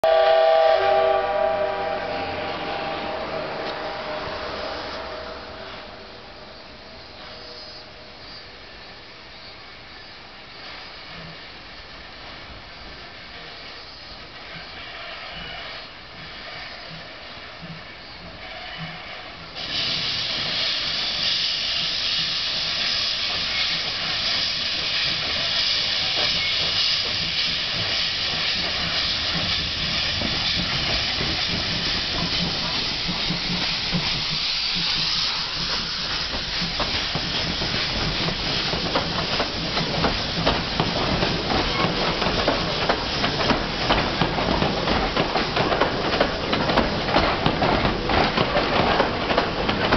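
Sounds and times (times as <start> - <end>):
loud steam hiss: 0.0 - 49.9
locomotive chuffs and clatter: 14.3 - 49.9.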